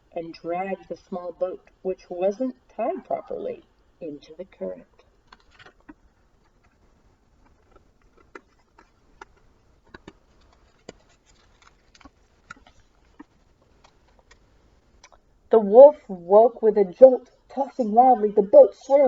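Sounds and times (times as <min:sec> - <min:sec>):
book handling clicks and taps: 0:07.4 - 0:14.5.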